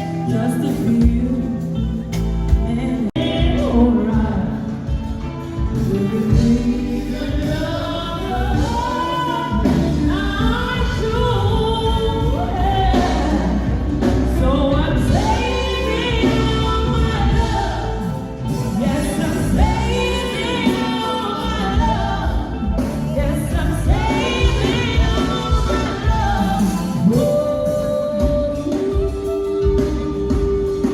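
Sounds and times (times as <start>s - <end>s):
instrumental accompaniment: 0.0s - 30.9s
person singing gospel: 0.0s - 30.9s.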